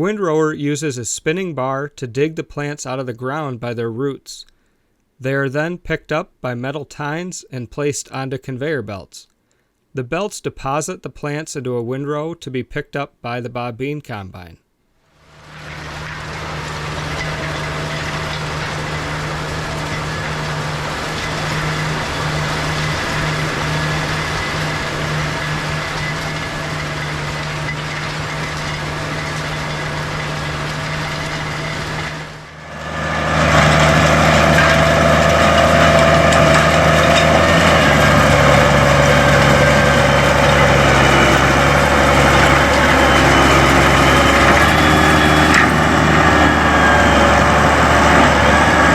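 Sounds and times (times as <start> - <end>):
farm machinery running: 15.2 - 48.9
machinery whining tones: 15.2 - 48.9
tractor engine running: 15.2 - 48.9.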